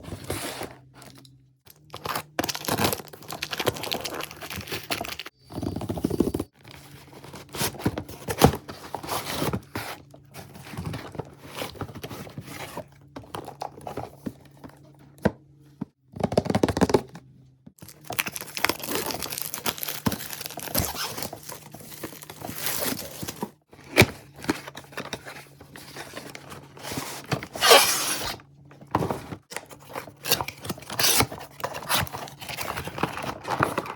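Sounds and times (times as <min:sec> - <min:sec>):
packaging tearing and crinkling: 0:01.8 - 0:05.3, 0:17.8 - 0:24.0, 0:29.7 - 0:33.9.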